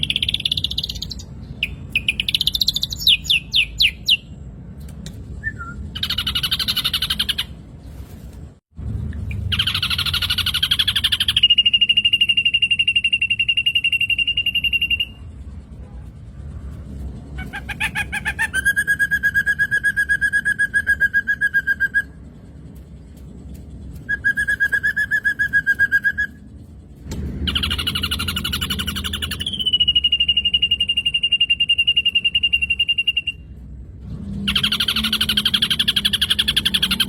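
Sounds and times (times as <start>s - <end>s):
bird trilling song: 0.0s - 7.6s, 9.2s - 15.4s, 17.4s - 22.3s, 23.0s - 26.5s, 27.3s - 33.6s, 34.4s - 37.0s.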